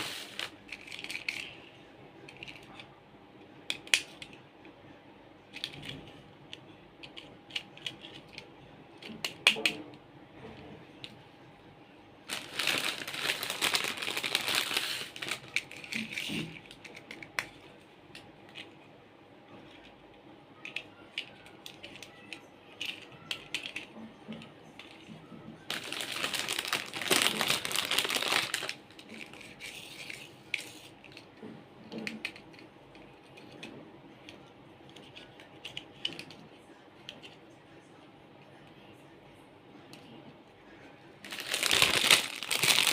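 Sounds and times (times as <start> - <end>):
plastic toys clicking and rattling: 0.0 - 3.0, 3.6 - 4.5, 5.5 - 10.0, 12.3 - 18.8, 19.6 - 37.4, 41.2 - 42.9.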